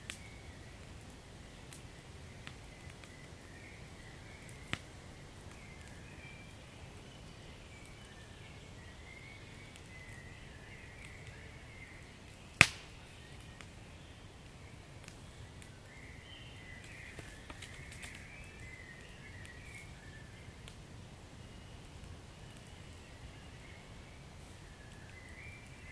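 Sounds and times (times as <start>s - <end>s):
fire popping: 0.0s - 25.9s
wood fire crackling: 0.0s - 25.9s.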